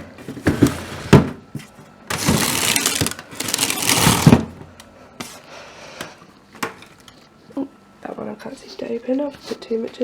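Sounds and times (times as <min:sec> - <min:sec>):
freezer drawer sliding: 0:00.2 - 0:01.4, 0:02.1 - 0:04.6
drawer thud: 0:02.1 - 0:04.6
freezer drawers knocking: 0:02.1 - 0:04.7.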